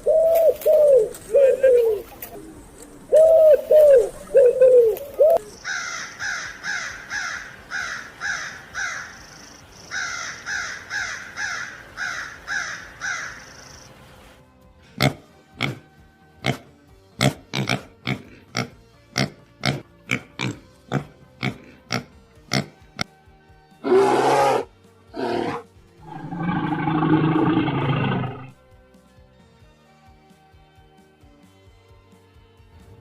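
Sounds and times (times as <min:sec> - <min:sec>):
animal calling: 0:00.0 - 0:13.7, 0:23.8 - 0:28.6
soft background music: 0:00.0 - 0:33.0.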